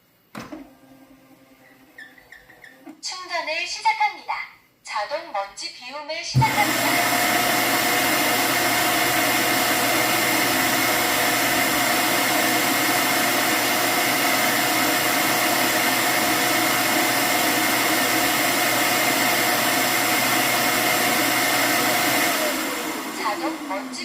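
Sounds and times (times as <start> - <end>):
suction motor rushing: 6.4 - 24.0.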